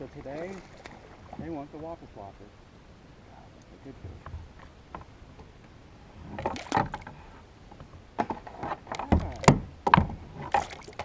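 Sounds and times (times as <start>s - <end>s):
fishing gear knocking and rattling: 6.4s - 7.2s, 8.2s - 11.0s.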